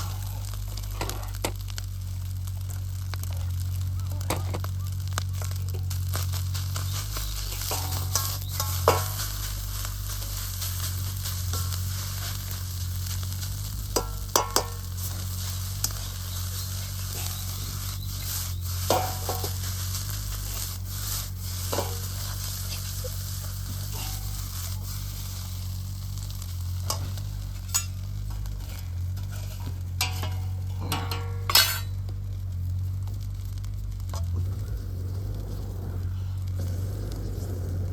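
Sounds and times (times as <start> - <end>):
fried rice sizzling in a wok: 0.0 - 37.9
metal ladle scraping and knocking wok: 5.5 - 32.6.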